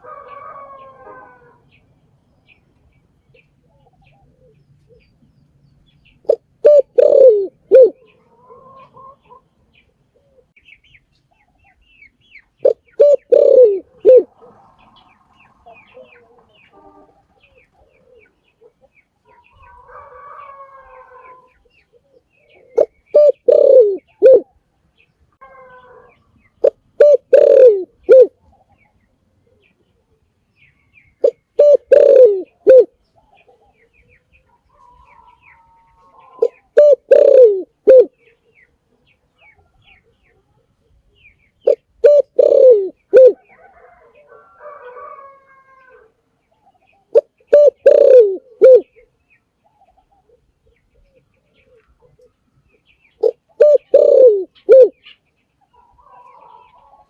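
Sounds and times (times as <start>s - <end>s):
dove cooing: 0.0s - 1.7s, 3.3s - 5.1s, 6.2s - 9.5s, 10.1s - 10.6s, 12.6s - 24.6s, 25.4s - 28.4s, 31.2s - 33.8s, 34.8s - 38.3s, 41.6s - 52.4s, 53.2s - 55.2s.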